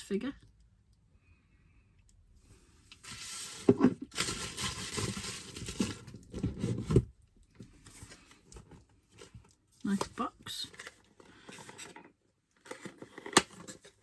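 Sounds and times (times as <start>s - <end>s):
packaging rustling and crinkling: 3.0s - 7.1s.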